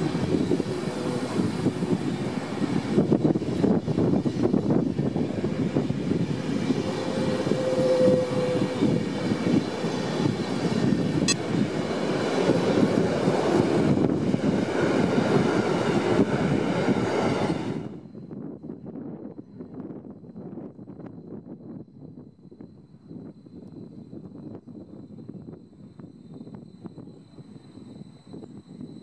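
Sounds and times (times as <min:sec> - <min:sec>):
train wheels rumbling on rails: 0:00.0 - 0:18.0
wheel squeal: 0:06.6 - 0:09.6.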